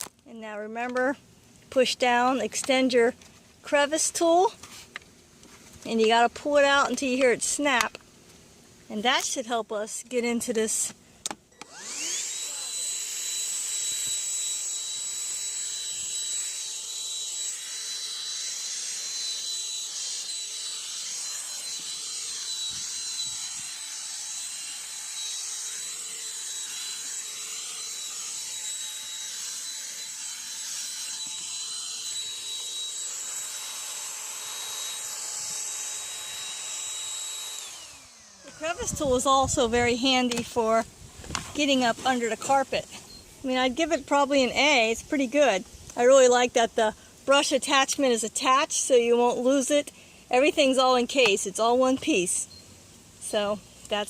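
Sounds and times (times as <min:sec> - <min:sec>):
handheld vacuum whining: 0:10.7 - 0:46.6.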